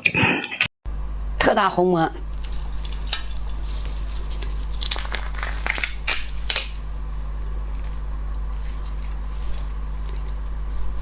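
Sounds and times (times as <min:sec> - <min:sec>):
low electrical hum: 0:00.2 - 0:11.0
shellfish shells cracking: 0:02.3 - 0:11.0.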